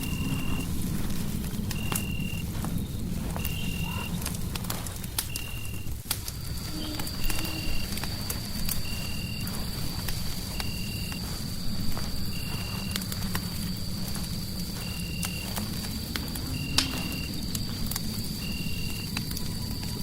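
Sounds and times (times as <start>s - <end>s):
fire crackling and popping: 0.0s - 20.0s
steady low rumble: 0.0s - 20.0s
thin high whine: 6.5s - 9.2s.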